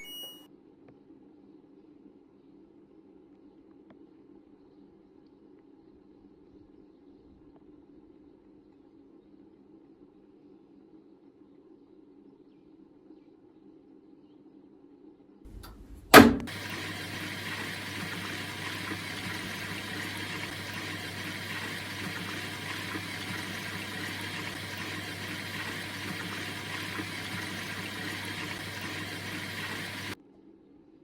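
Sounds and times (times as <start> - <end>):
washing machine click: 15.5 - 30.2
water rushing: 15.5 - 30.2.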